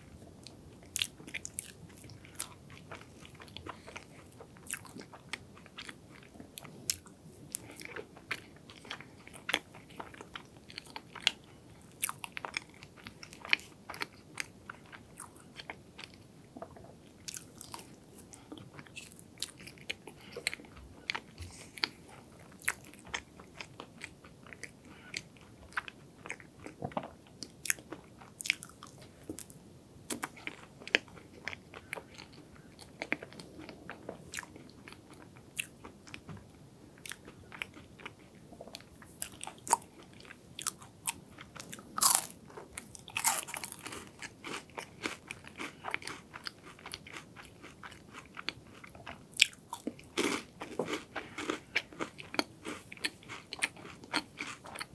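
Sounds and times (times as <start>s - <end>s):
chewing crunchy cake: 0.0s - 54.9s.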